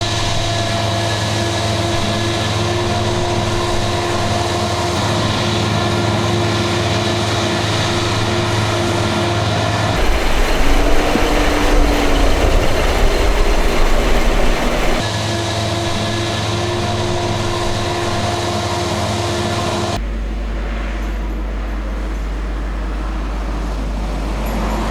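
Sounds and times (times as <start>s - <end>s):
diesel machinery running under load: 2.4s - 15.1s
machine whine: 10.0s - 15.1s.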